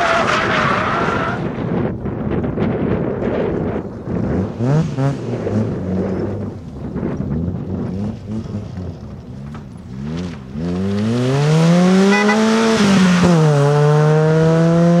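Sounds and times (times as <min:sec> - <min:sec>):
rally car engine revving: 0:03.2 - 0:15.0.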